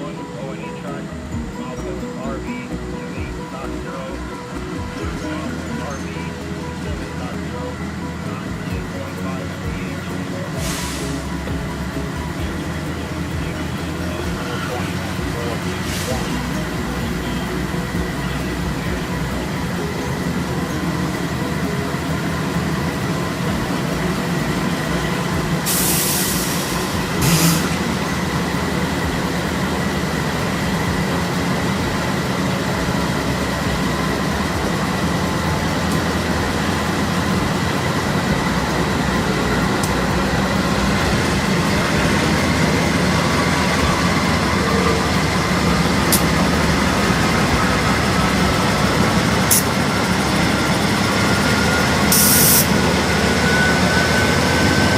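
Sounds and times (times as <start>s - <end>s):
high steady tones: 0.0s - 54.9s
train rumbling on rails: 0.0s - 54.9s
air hiss bursts: 25.6s - 27.8s, 52.1s - 52.7s.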